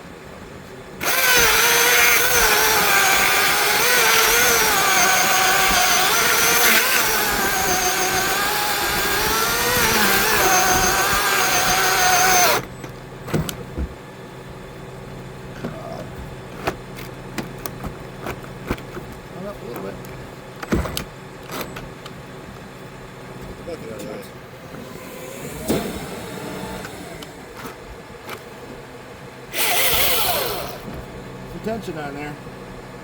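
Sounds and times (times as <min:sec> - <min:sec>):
chainsaw cutting wood: 0:01.0 - 0:12.7, 0:29.5 - 0:30.9.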